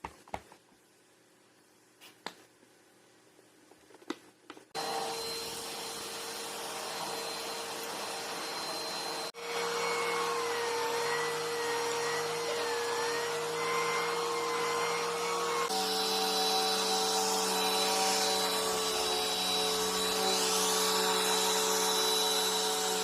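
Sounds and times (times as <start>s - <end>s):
vacuum motor whining: 4.8s - 23.0s.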